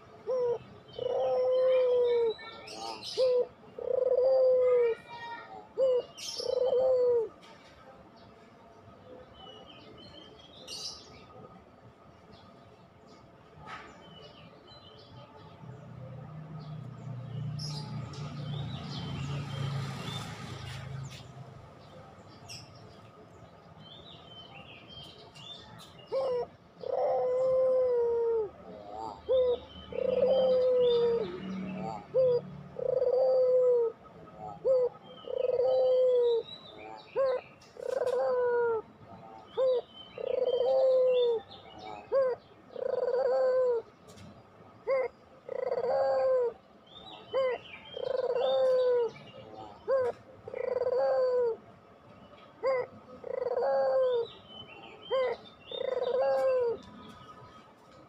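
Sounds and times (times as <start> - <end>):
dove cooing: 0.0 - 7.5, 25.6 - 51.7, 52.6 - 57.6
small birds chirping: 39.2 - 51.2, 51.8 - 58.0.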